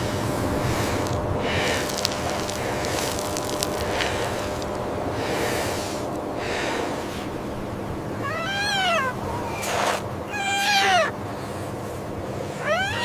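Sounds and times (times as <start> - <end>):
steady hiss: 0.0 - 8.3
young animal mewing cries: 8.1 - 11.2, 12.6 - 13.0.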